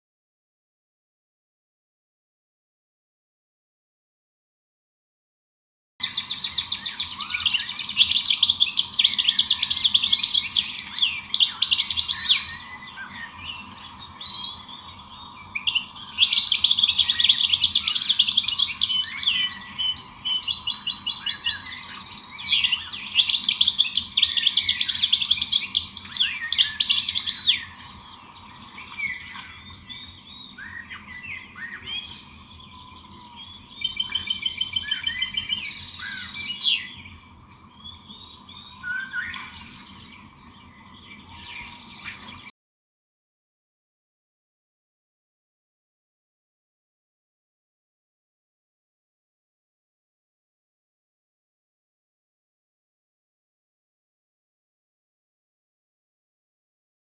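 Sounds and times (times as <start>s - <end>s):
songbirds chirping and twittering: 6.0s - 42.5s.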